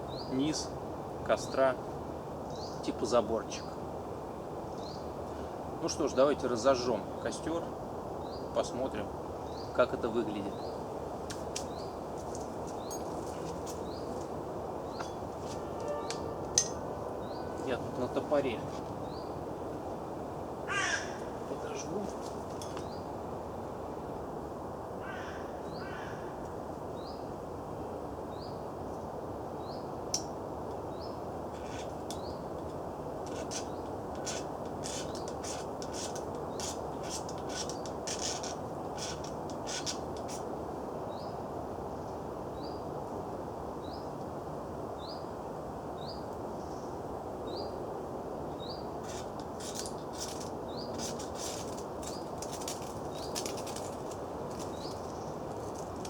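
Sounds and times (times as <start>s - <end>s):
steady background hiss: 0.0s - 56.0s
bird chirping: 12.7s - 19.4s, 48.5s - 53.9s, 54.5s - 55.9s
fire steel scraping: 14.9s - 18.9s, 31.5s - 32.0s, 33.2s - 40.4s, 49.0s - 56.0s.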